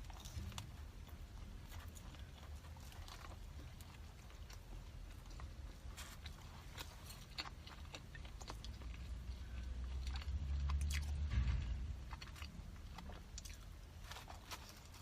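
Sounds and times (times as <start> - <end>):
chewing crispy fried dough: 0.0 - 15.0
low rumble: 8.7 - 15.0.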